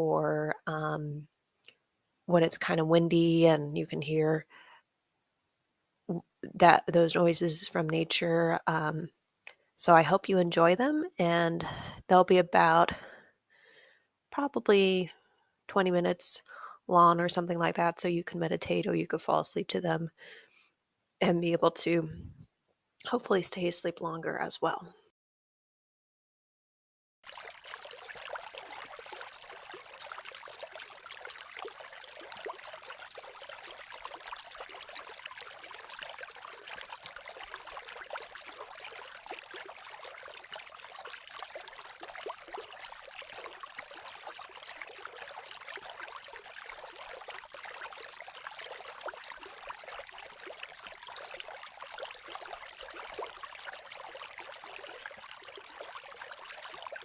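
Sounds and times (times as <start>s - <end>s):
creek water babbling: 27.2s - 57.0s.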